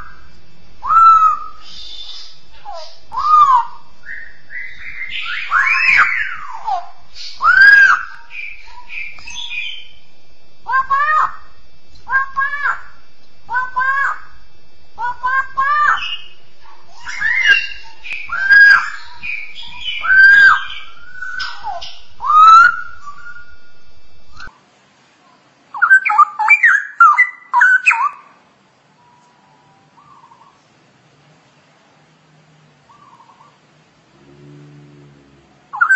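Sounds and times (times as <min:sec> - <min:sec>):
bird whistled song: 0:00.8 - 0:10.0, 0:15.0 - 0:24.5, 0:25.7 - 0:28.2.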